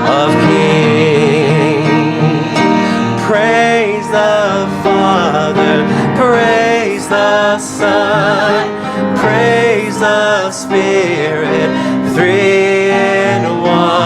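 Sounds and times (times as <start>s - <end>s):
instrumental accompaniment: 0.0s - 14.0s
person singing worship song: 0.0s - 14.0s.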